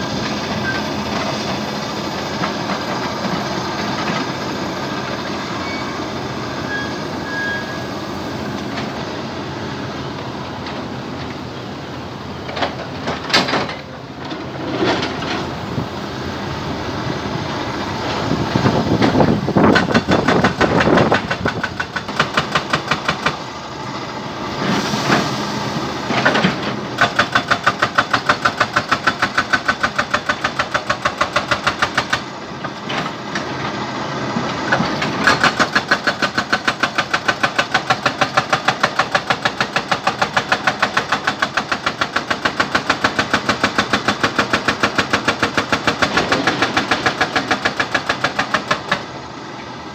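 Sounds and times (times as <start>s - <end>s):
jackhammer pounding rock: 18.7s - 23.5s, 26.3s - 32.4s, 34.7s - 49.2s.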